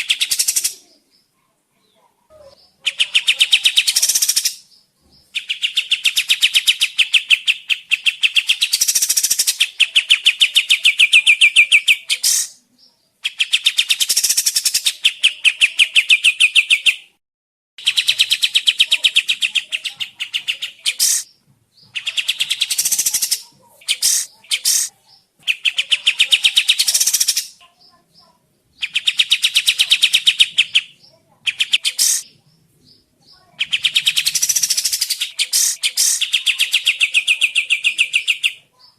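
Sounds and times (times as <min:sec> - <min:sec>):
bulbul trilling song: 0:02.3 - 0:04.8, 0:05.4 - 0:12.6, 0:17.8 - 0:38.9
bird short sharp calls: 0:11.1 - 0:12.6, 0:19.6 - 0:21.3, 0:22.0 - 0:24.9, 0:28.8 - 0:32.3, 0:33.3 - 0:37.0.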